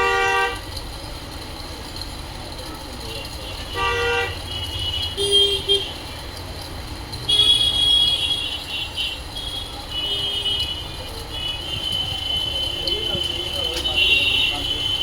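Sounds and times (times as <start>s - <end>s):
vehicle horns tooting: 0.0s - 0.6s, 3.2s - 6.1s, 7.2s - 15.0s
low traffic rumble: 0.0s - 15.0s.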